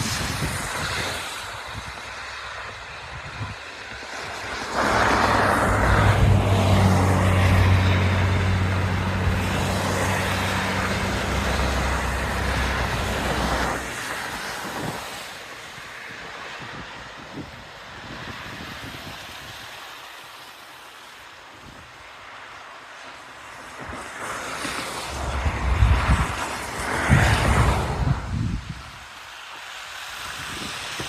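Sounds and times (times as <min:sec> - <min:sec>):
background traffic noise: 0:00.0 - 0:31.0
vehicle engine running: 0:06.2 - 0:13.7.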